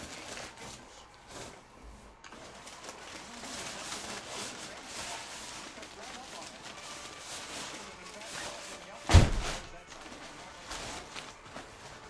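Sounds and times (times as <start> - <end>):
rustling of packaging: 0.0 - 12.0.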